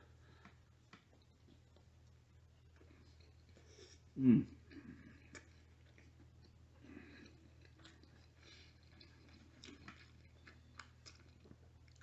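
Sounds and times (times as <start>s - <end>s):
faint chewing: 0.0s - 12.0s
low steady hum: 0.0s - 12.0s.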